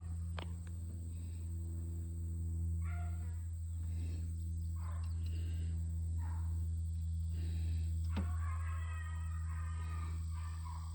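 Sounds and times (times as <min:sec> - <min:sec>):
steady low hum: 0:00.0 - 0:10.9
hounds baying: 0:02.8 - 0:03.3, 0:08.1 - 0:10.9.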